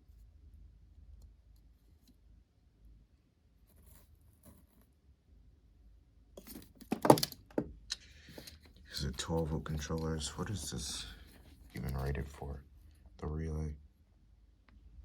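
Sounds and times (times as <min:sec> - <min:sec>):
faint low hum: 0:00.0 - 0:15.0
soft handling noises: 0:06.4 - 0:13.2.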